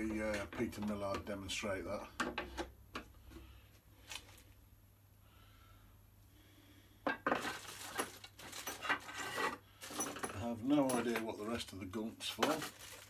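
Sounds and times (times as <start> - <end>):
metal parts clinking and rattling: 7.3 - 11.7.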